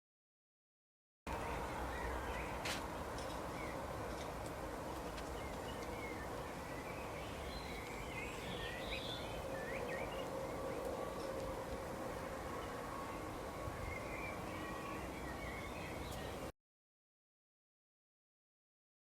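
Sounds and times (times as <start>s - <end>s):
small birds chirping: 1.3s - 3.9s, 4.8s - 11.6s, 12.5s - 16.5s
steady outdoor hiss: 1.3s - 16.5s.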